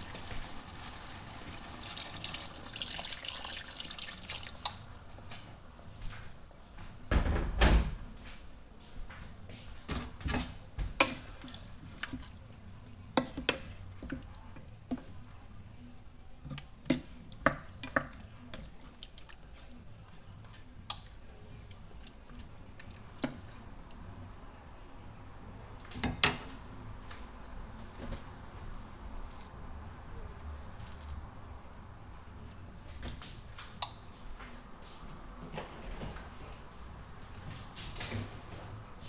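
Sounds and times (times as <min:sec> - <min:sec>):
water dripping: 0:00.0 - 0:05.0.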